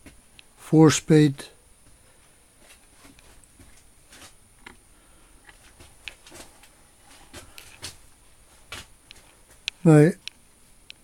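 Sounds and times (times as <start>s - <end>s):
faint clicks and light taps: 5.4s - 8.0s, 8.7s - 11.0s.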